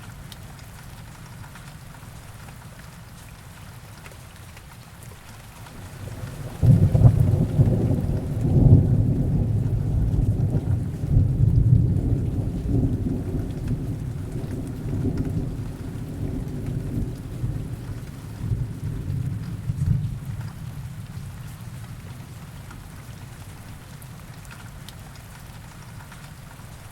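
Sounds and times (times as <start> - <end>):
heavy rain falling: 0.0 - 26.9
thunder rumbling: 5.7 - 21.4.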